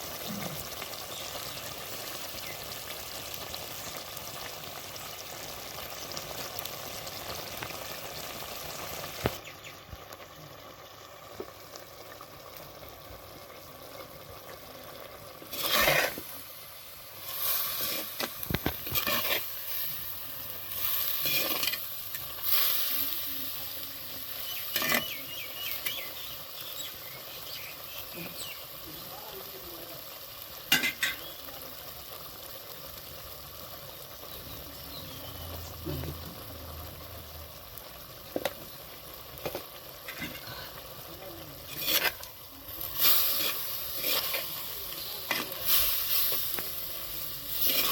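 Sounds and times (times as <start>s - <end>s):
chicken sizzling in oil: 0.0s - 47.9s
spatula scraping pan: 15.4s - 16.4s, 17.2s - 19.9s, 20.7s - 22.2s, 24.7s - 25.2s, 39.4s - 40.8s, 41.6s - 46.7s, 47.5s - 47.9s.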